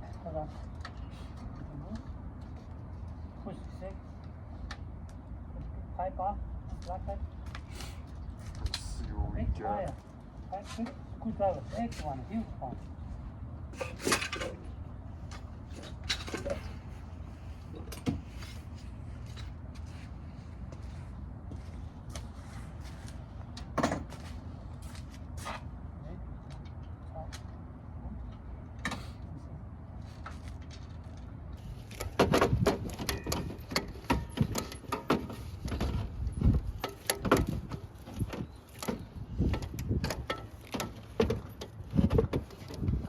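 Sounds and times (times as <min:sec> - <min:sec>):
steady low rumble: 0:00.0 - 0:34.6
hand tools clicking and knocking: 0:31.9 - 0:36.0, 0:36.8 - 0:43.0.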